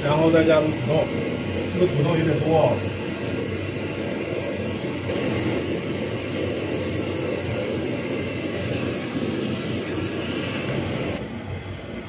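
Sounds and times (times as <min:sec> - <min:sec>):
potatoes sizzling in oil: 0:00.0 - 0:12.0
stove flame: 0:00.0 - 0:12.0.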